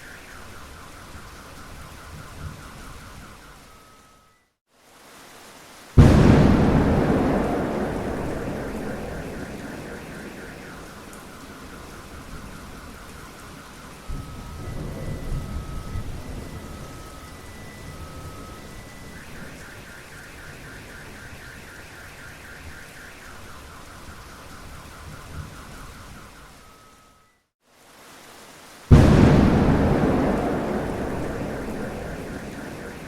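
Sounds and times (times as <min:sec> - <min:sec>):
steady rain: 0:00.0 - 0:33.0
thunder rumble: 0:06.0 - 0:13.3, 0:28.9 - 0:33.0
car alarm chirps and beeps: 0:06.7 - 0:13.3, 0:29.0 - 0:33.0.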